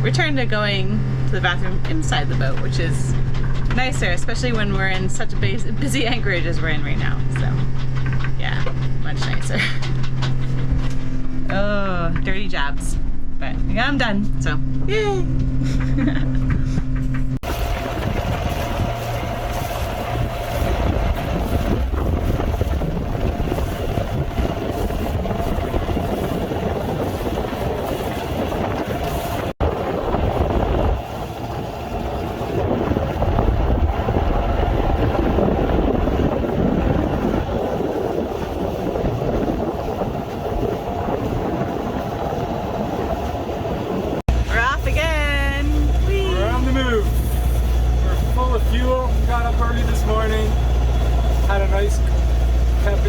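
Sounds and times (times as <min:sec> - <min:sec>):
boat motor running: 0:00.0 - 0:53.0
wind buffeting microphone: 0:00.0 - 0:53.0.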